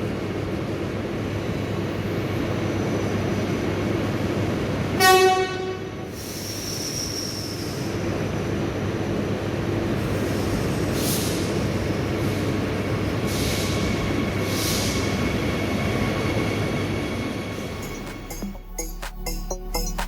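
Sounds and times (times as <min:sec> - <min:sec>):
train rumbling: 0:00.0 - 0:20.0
train horn blast: 0:05.0 - 0:06.1.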